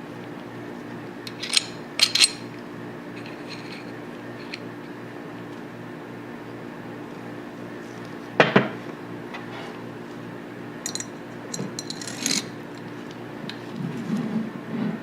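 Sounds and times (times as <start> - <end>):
light metallic clinks and taps: 10.8 - 12.4.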